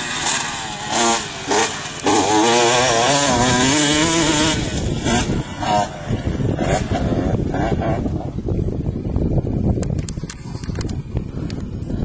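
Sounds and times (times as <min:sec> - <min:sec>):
motorbike engine revving: 0:00.0 - 0:09.0.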